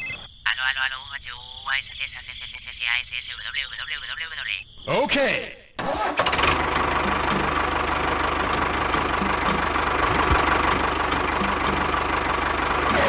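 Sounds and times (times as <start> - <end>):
motor running steadily: 6.5 - 13.0.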